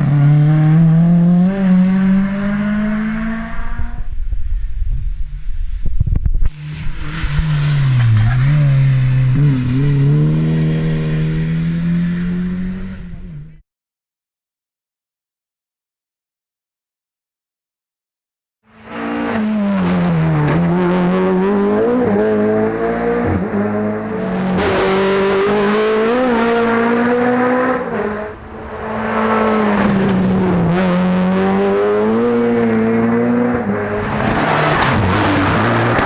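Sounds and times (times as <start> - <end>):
rally car engine revving: 0.0 - 4.2, 6.5 - 13.6, 18.7 - 36.0.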